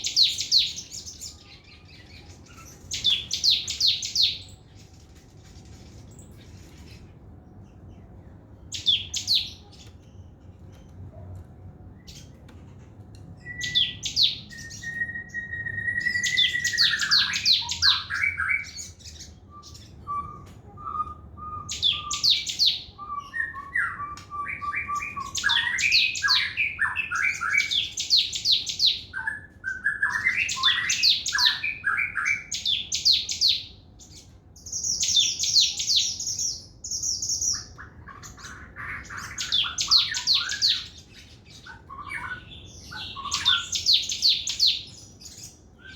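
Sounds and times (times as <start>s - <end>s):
songbird singing trills: 0.0s - 10.8s, 13.4s - 45.9s
bird whistled notes: 13.4s - 27.9s.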